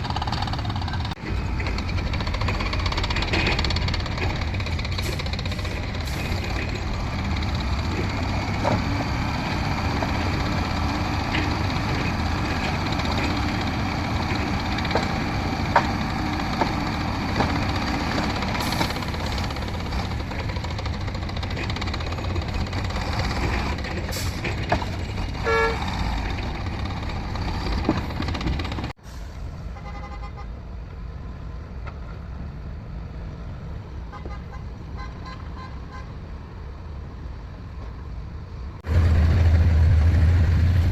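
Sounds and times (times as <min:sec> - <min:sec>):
diesel engines of heavy machinery: 0:00.0 - 0:40.9
horn toot: 0:25.4 - 0:25.9.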